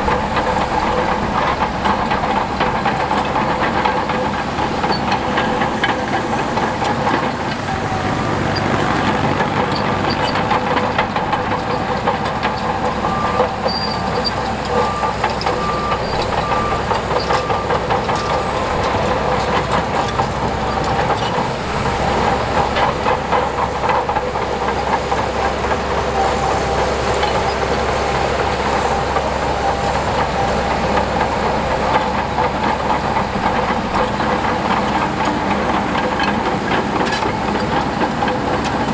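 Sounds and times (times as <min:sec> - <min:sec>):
crawler tracks clanking: 0:00.0 - 0:38.9
diesel machinery engine: 0:00.0 - 0:38.9
reversing alarm beeping: 0:13.0 - 0:21.1.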